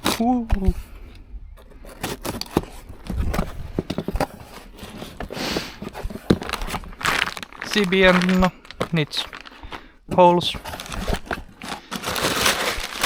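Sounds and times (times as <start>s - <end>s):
packaging tearing rustle: 0.0s - 0.3s, 1.6s - 13.0s
knocks and scrapes on cardboard: 1.6s - 7.2s.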